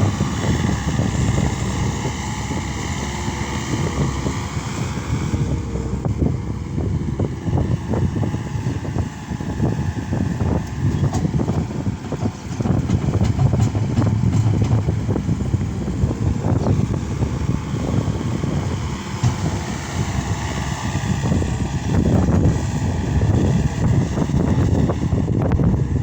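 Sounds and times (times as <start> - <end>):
diesel engine running under load: 0.0 - 26.0
knocks and clatter: 10.9 - 15.8.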